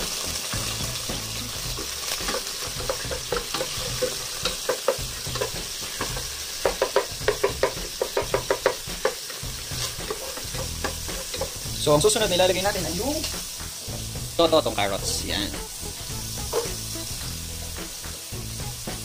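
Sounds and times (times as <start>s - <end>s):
onion and garlic sizzling in oil: 0.0s - 19.0s
spatula knocking against pot: 2.3s - 9.2s.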